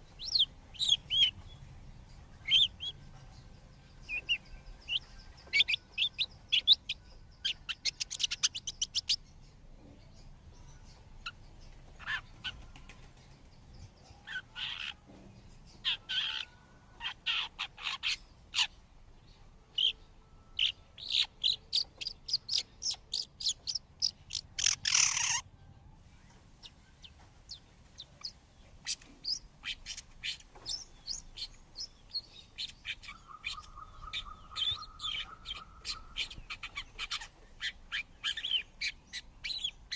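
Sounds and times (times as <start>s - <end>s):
birds chirping short high calls: 15.8s - 18.8s, 19.7s - 25.5s, 26.2s - 39.9s.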